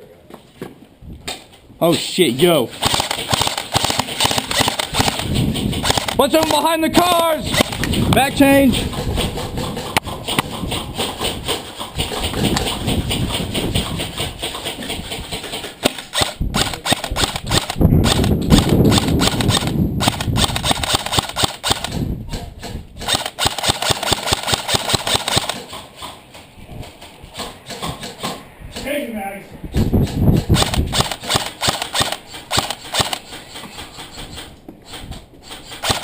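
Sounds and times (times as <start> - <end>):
airsoft guns firing full auto: 2.7 - 8.7, 15.8 - 22.0, 23.0 - 25.7, 30.6 - 33.3, 35.7 - 36.0.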